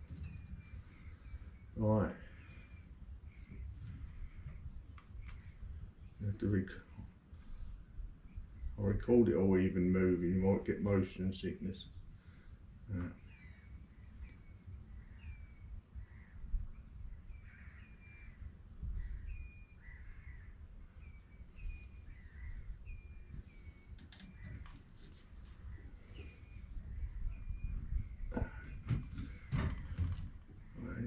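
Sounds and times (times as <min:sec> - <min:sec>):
birds calling: 0:00.0 - 0:31.0
wind rumbling on microphone: 0:00.0 - 0:31.0
rustling knocks: 0:28.4 - 0:30.8.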